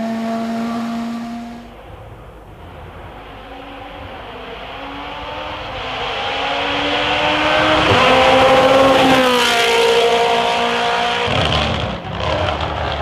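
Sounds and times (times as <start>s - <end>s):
rally car engine accelerating: 0.0s - 13.0s.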